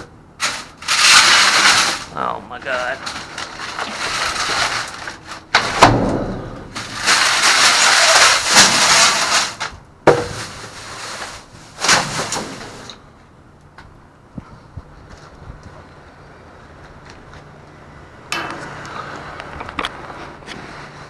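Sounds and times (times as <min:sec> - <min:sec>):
trash rustling and clattering: 0:00.0 - 0:13.3.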